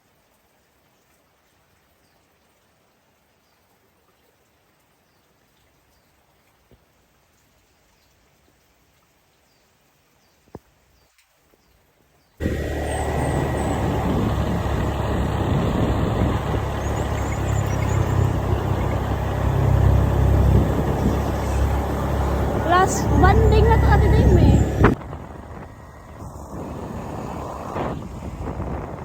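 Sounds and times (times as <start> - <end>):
road vehicle noise with deep rumble: 12.4 - 29.0.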